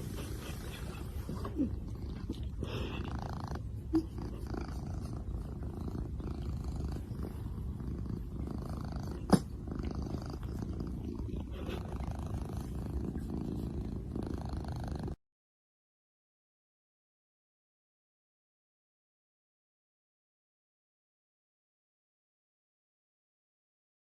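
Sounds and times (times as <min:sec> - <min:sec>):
cat purring: 0:00.0 - 0:15.2.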